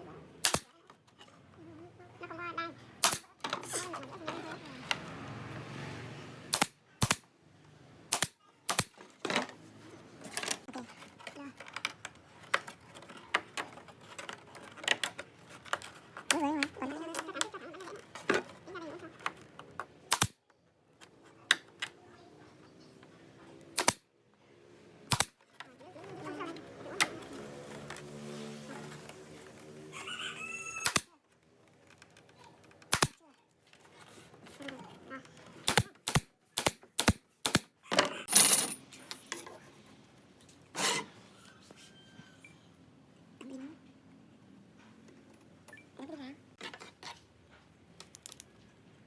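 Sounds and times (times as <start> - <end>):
wood pieces and tools clicking: 10.2 - 20.4, 23.7 - 24.0, 30.8 - 39.5, 48.0 - 48.5
metallic clicks and clinks: 48.0 - 48.5.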